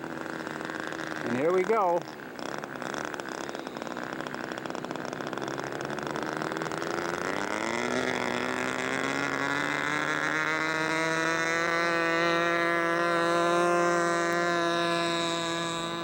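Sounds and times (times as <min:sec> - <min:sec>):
model airplane engine running up: 0:00.0 - 0:16.0.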